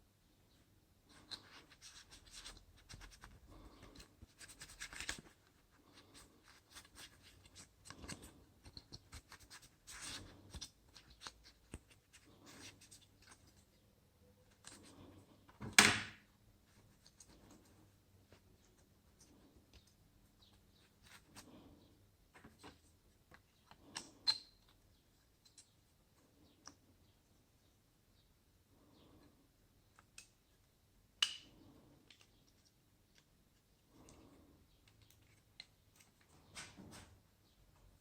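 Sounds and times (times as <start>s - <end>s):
scraping and rustling on laptop: 1.1s - 13.8s.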